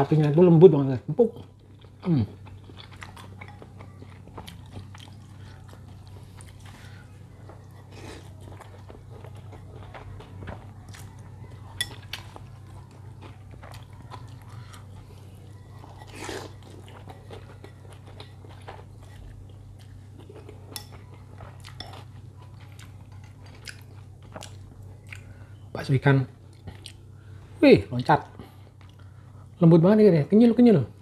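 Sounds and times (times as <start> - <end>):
steady low hum: 0.0 - 31.0
chewing and biting food: 1.4 - 25.3.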